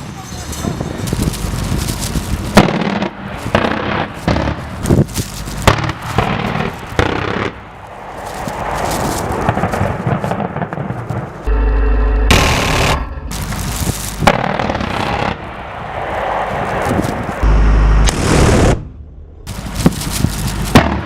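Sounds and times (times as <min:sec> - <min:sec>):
continuous rumble: 0:00.0 - 0:11.5, 0:12.3 - 0:21.0
weapons fire bangs and blasts: 0:02.5 - 0:04.7.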